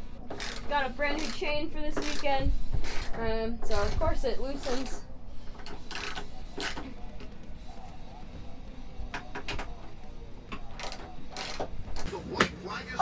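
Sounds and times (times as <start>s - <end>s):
faint background music: 0.0s - 13.0s
hand tools clicking on metal chain: 0.3s - 2.3s.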